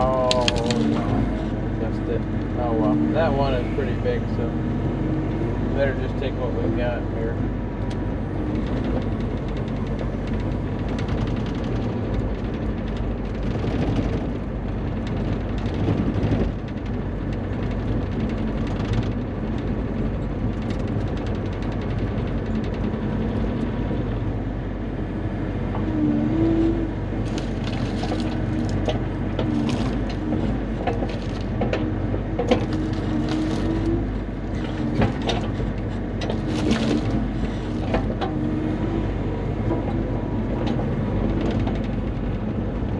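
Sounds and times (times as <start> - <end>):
excavator diesel engine running: 0.0 - 42.9
sharp clicks and knocks: 27.2 - 34.0, 34.6 - 38.4.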